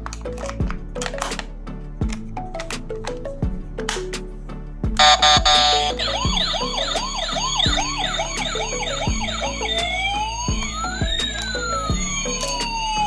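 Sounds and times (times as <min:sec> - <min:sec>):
background music with beat: 0:00.0 - 0:13.0
buzzy horn tone: 0:05.0 - 0:06.7
electronic police siren: 0:05.0 - 0:13.0.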